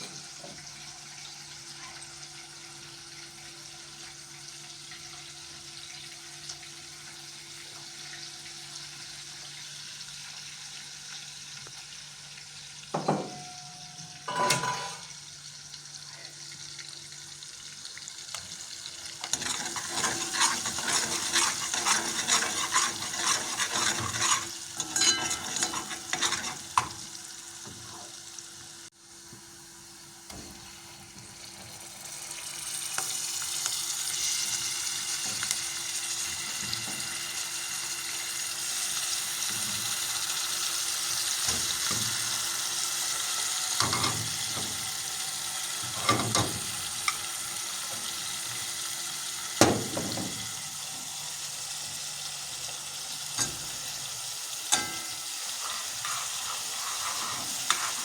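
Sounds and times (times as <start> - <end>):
food frying in a pan: 0.0 - 58.0
utensil scraping a pan: 19.2 - 27.0, 54.7 - 58.0.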